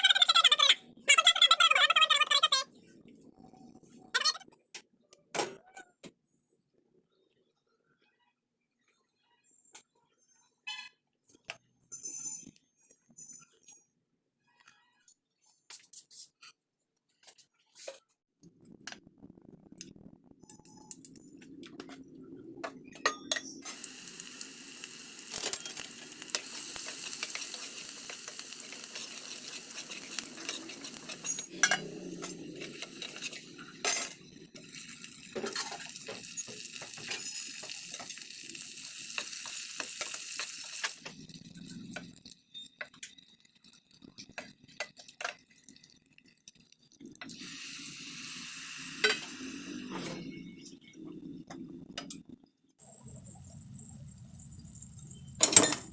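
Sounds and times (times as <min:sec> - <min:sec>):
food sizzling in hot oil: 0:23.6 - 0:49.9, 0:52.8 - 0:55.9.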